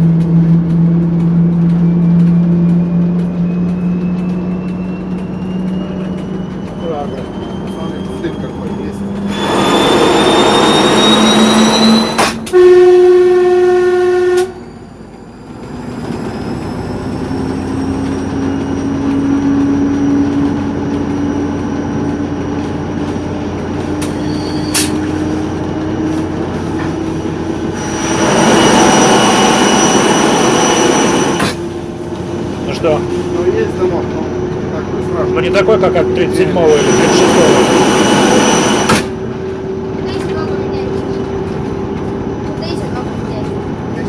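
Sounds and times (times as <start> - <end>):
diesel engine note: 0.0 - 15.3
turbocharger whistling: 1.4 - 23.2, 23.8 - 41.0
locomotive horn blast: 9.3 - 14.7
loud rushing noise: 26.7 - 33.6, 35.2 - 39.4.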